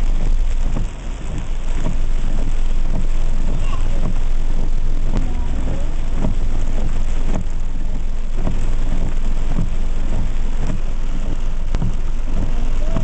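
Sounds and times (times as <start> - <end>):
heavy rain falling: 0.0 - 13.0
low rumble of vehicles: 0.0 - 13.0.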